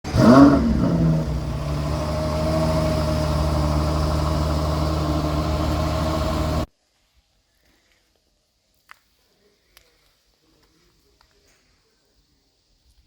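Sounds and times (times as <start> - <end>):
car engine revving and idling: 0.0 - 6.7.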